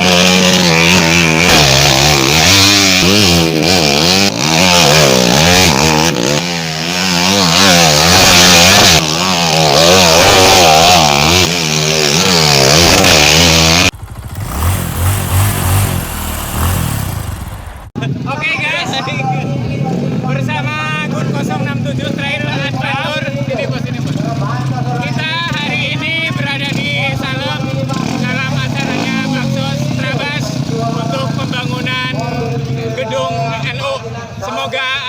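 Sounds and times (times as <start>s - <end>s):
motorcycle engine revving: 0.0s - 18.0s
quieter lower engine sound: 13.4s - 18.0s.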